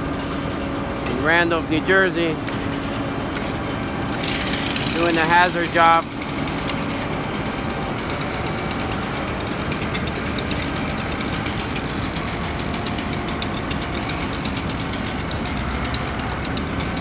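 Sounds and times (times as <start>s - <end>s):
engine running with clatter: 0.0s - 17.0s.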